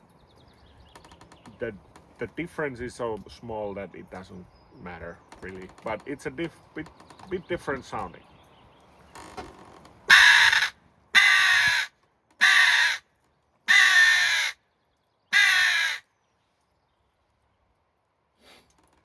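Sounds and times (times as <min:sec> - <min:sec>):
crow game call caws: 0:10.1 - 0:13.1, 0:13.7 - 0:14.6, 0:15.3 - 0:16.1.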